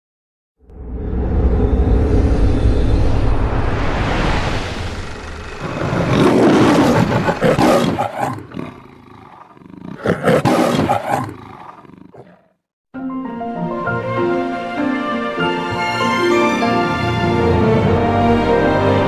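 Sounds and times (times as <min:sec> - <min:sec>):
lion roaring: 0:04.8 - 0:12.6
music: 0:12.9 - 0:19.0.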